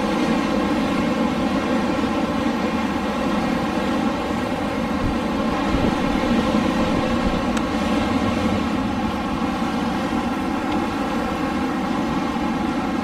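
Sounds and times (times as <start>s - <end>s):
wind blowing steadily: 0.0s - 13.0s.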